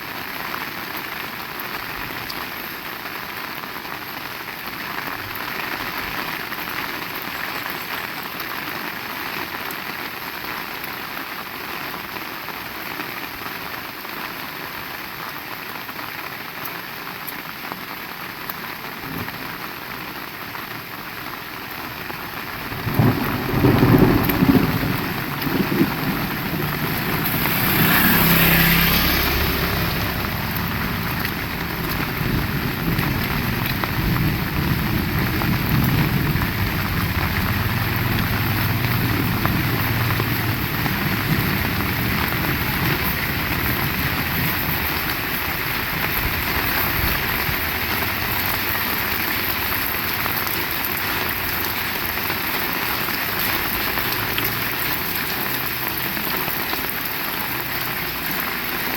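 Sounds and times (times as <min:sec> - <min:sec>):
heavy rain falling: 0:00.0 - 0:58.9
low rumble: 0:24.8 - 0:44.4.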